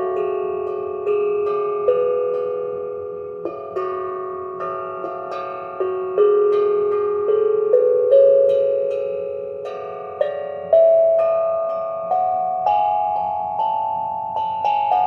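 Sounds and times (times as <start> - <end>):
steel tongue drum notes: 0.0 - 15.0.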